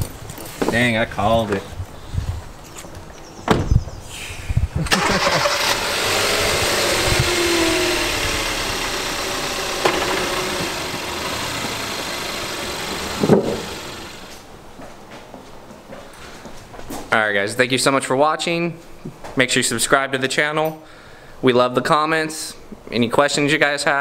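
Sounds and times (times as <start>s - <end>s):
car engine starting and idling: 4.9s - 14.5s
thumps: 7.0s - 14.4s.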